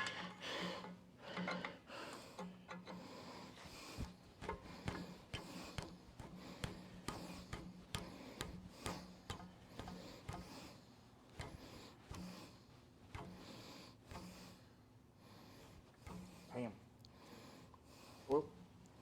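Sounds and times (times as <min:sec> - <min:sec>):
hand tools clicking: 0:00.0 - 0:10.7, 0:11.4 - 0:14.5.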